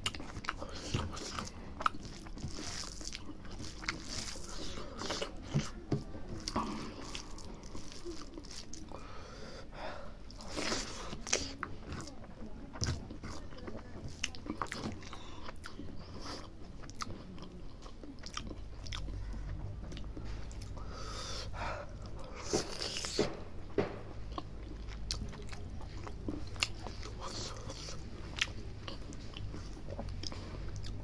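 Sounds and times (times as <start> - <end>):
chewing with wet smacks: 0.0 - 9.1, 10.3 - 23.3, 24.2 - 31.0.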